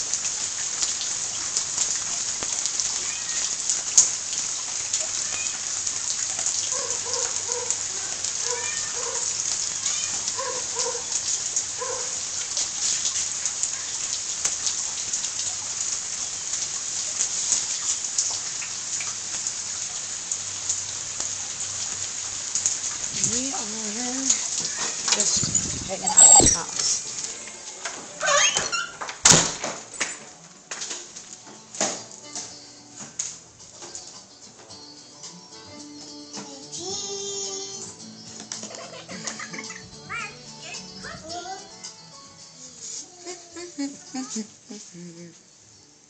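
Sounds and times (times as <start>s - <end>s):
steady rain falling: 0.0s - 46.0s
short pitched calls: 26.0s - 26.9s.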